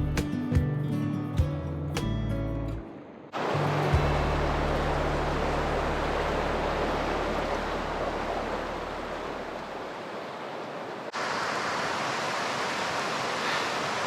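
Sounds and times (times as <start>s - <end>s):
low background music: 0.0s - 8.3s
river rapids rushing: 3.3s - 14.0s.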